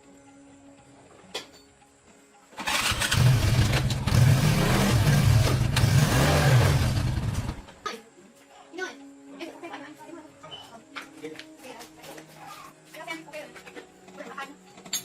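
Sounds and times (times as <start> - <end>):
small motorcycle engine revving: 2.6 - 7.7.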